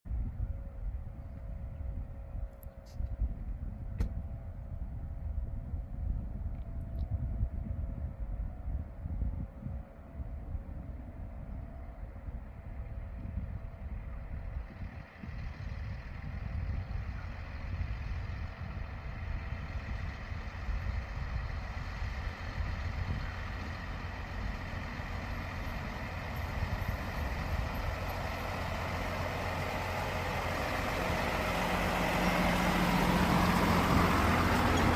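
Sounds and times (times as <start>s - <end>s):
truck running on rails: 7.6s - 34.9s.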